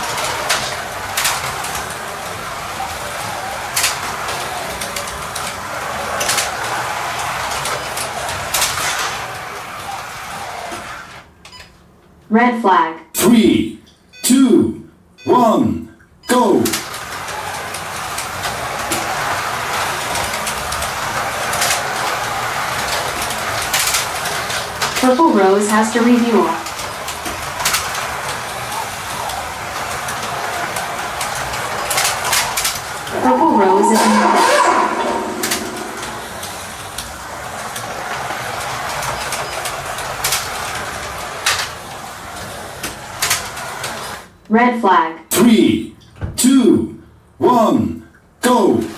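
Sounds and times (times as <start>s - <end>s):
sharp clicks from track joints: 0.0s - 9.4s, 16.7s - 33.2s, 34.6s - 44.1s
cars rattling in slots: 0.0s - 11.3s, 16.3s - 44.3s
slot car motors whirring: 0.0s - 11.4s, 16.3s - 44.4s.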